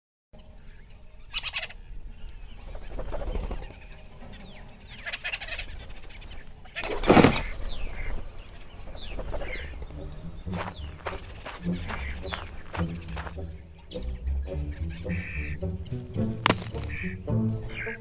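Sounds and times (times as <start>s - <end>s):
birds calling with whistles: 0.4s - 18.0s.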